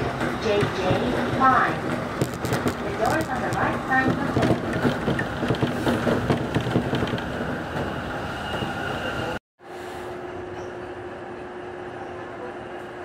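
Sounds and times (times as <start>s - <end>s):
train wheels rumbling on bridge: 0.0s - 9.4s.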